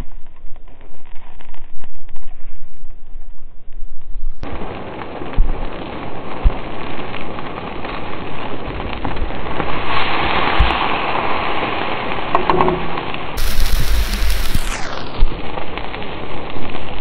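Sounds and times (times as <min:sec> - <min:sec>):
rain falling: 0:04.5 - 0:15.8.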